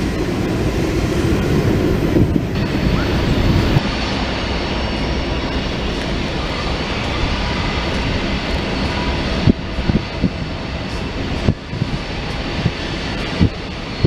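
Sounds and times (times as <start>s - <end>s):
diesel locomotive running: 0.0s - 14.0s.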